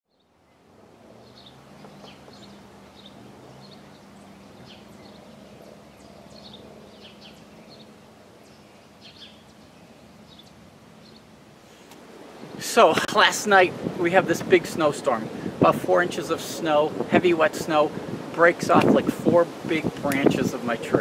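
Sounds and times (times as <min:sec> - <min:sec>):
small birds chirping: 0:00.1 - 0:12.6
steady low hum: 0:00.2 - 0:14.6.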